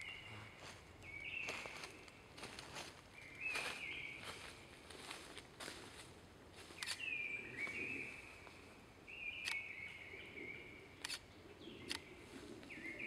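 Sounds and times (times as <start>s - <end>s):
sharp clicks: 9.4s - 9.6s, 11.0s - 11.2s.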